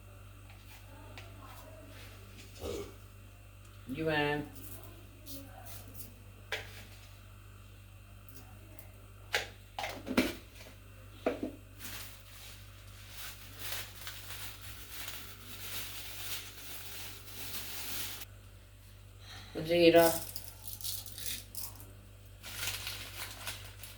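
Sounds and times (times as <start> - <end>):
low electrical hum: 0.0 - 23.9
kitchen knocks and clatters: 9.4 - 11.6
dry rustling: 11.8 - 18.2.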